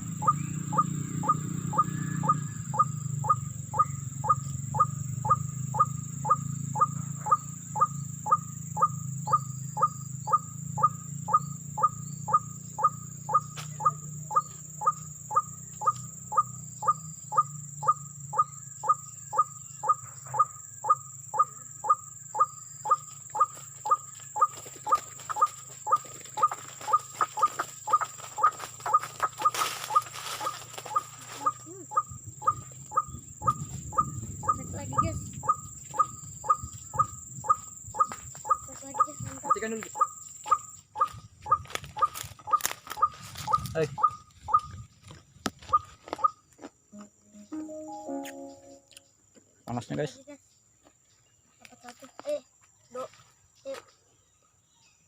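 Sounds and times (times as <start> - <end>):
bird calling short note: 47.0 - 49.0.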